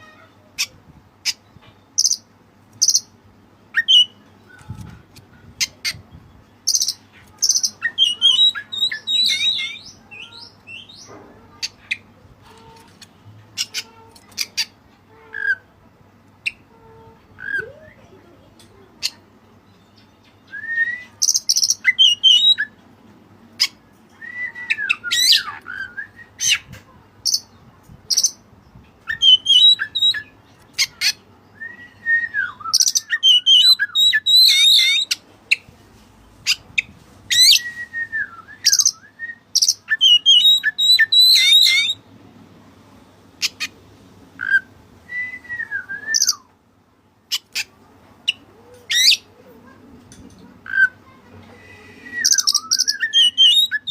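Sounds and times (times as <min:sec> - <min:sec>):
bird singing whistled phrases: 0:06.7 - 0:11.0, 0:20.3 - 0:22.7, 0:24.2 - 0:26.6, 0:29.1 - 0:30.3, 0:31.5 - 0:35.2, 0:37.3 - 0:42.0, 0:44.4 - 0:46.5, 0:51.6 - 0:53.9.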